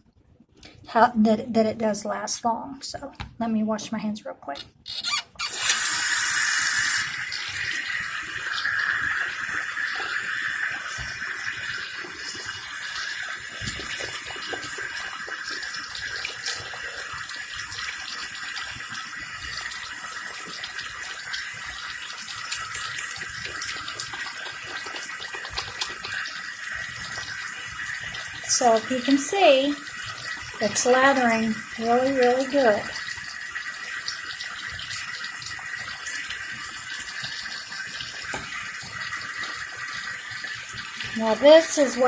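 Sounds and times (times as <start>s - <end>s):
tap water running into sink: 4.6s - 42.0s
hands rubbing with soap: 22.3s - 26.3s.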